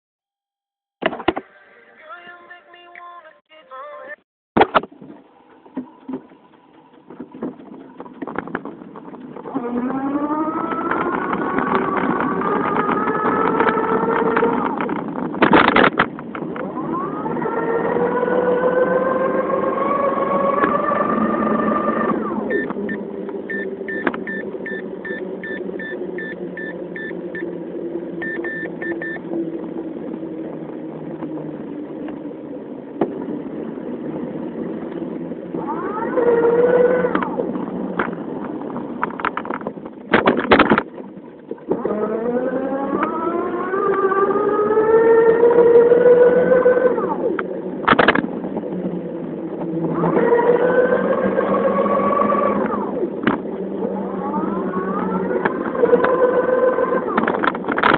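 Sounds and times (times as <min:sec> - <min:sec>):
short beeps: 0:22.5 - 0:27.5, 0:28.2 - 0:29.2.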